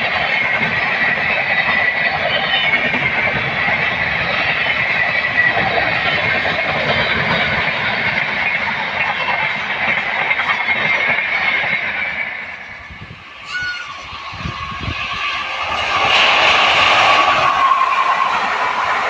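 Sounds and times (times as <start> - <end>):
express train running past: 0.0 - 19.0
wheels clattering on rails: 0.0 - 19.0.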